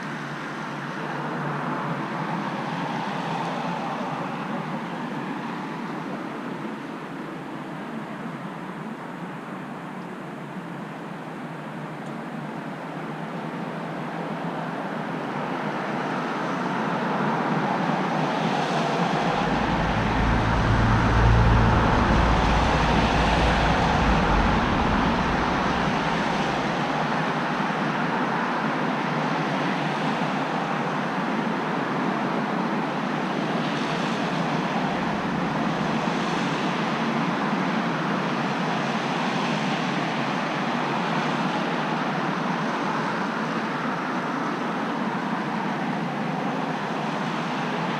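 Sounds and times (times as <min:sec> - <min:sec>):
road traffic passing: 0:17.1 - 0:28.5, 0:33.2 - 0:36.8
heavy vehicle rumbling by: 0:18.0 - 0:28.5, 0:33.4 - 0:37.0.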